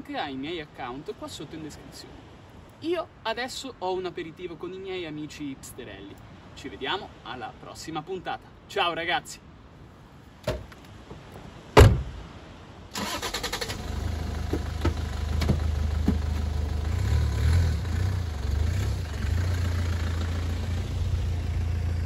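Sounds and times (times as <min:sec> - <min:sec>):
car door shutting: 0:10.4 - 0:10.8, 0:11.8 - 0:12.2, 0:14.4 - 0:16.5
car engine starter cranking: 0:13.0 - 0:16.2
car engine idling: 0:13.0 - 0:22.0.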